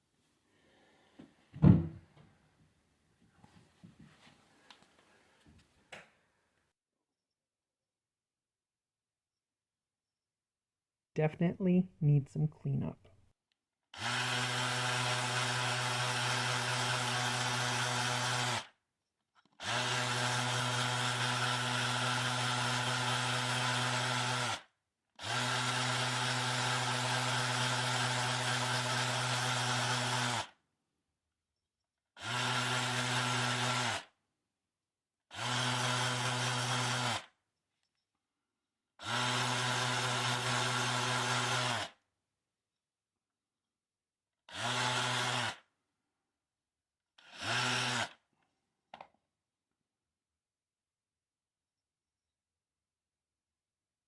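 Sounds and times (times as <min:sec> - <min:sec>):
small electric power tool running: 0:13.9 - 0:18.8, 0:19.4 - 0:30.6, 0:32.2 - 0:34.2, 0:35.3 - 0:37.4, 0:39.0 - 0:42.0, 0:44.5 - 0:45.7, 0:47.2 - 0:48.2.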